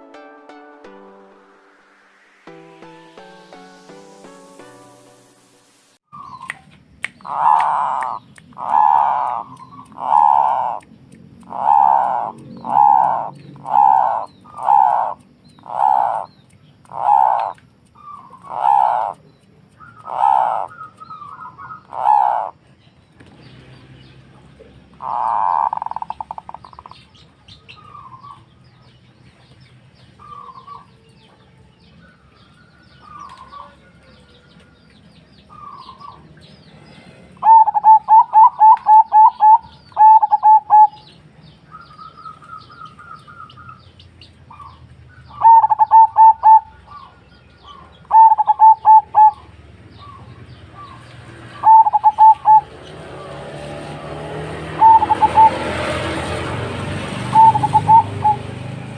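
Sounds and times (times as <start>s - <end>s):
faint bird calls: 6.1s - 22.7s, 24.7s - 34.8s, 35.5s - 43.9s, 44.5s - 52.7s, 54.8s - 55.6s, 57.3s - 58.4s
dove cooing: 7.2s - 10.8s, 11.5s - 16.3s, 16.9s - 17.6s, 18.3s - 19.2s, 19.8s - 22.6s, 25.0s - 26.8s, 37.0s - 41.0s, 45.4s - 47.1s, 47.7s - 49.4s, 50.8s - 52.8s, 54.7s - 56.2s, 57.3s - 58.5s.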